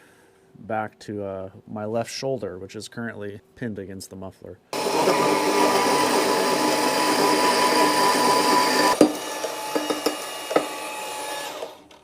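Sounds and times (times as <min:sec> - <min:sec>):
power tool cutting pipe: 0:04.8 - 0:12.0.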